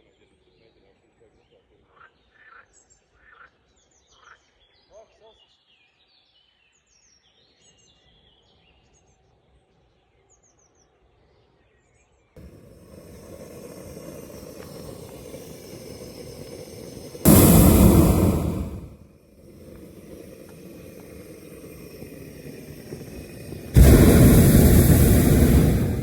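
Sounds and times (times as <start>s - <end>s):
propane burner blasts: 12.4s - 26.0s.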